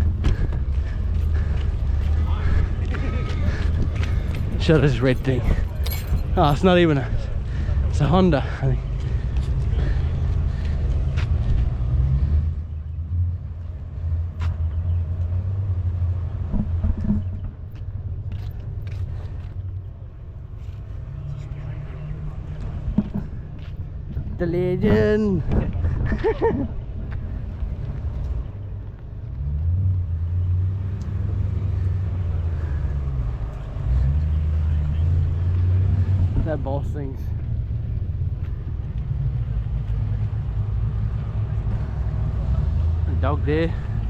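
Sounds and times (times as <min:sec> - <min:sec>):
car engine running: 0:00.0 - 0:11.8
car engine rumbling: 0:00.0 - 0:44.0.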